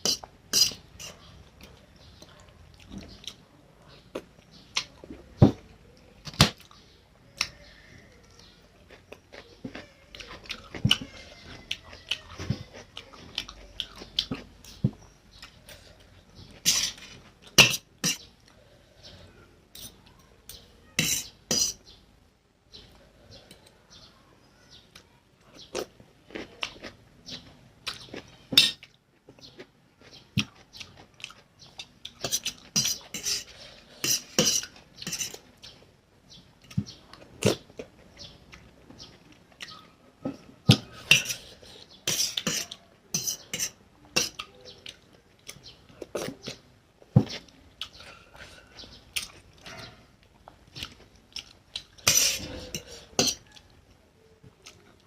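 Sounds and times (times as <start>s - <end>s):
chewing: 8.2s - 18.6s, 24.9s - 35.5s, 47.2s - 53.9s.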